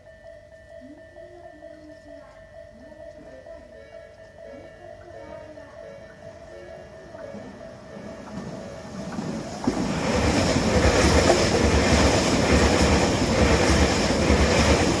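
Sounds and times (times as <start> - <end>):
electric train passing: 0.8 - 15.0
wheels clattering over rail joints: 7.7 - 15.0.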